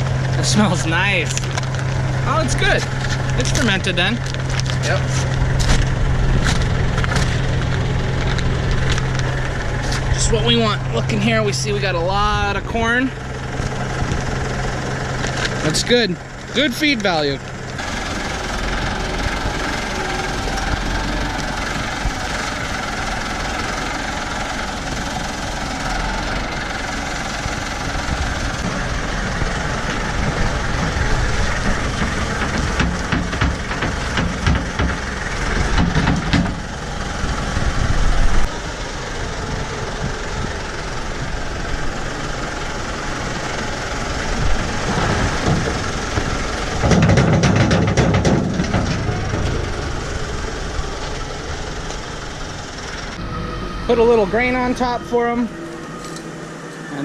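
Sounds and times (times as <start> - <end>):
tractor engine running: 0.0 - 57.0
knocks and rattles: 17.4 - 38.5, 44.2 - 51.3.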